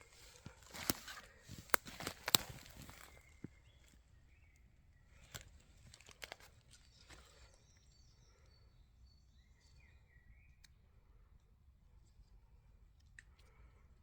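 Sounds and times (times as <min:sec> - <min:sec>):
soft clicks or snaps: 0:00.7 - 0:03.2.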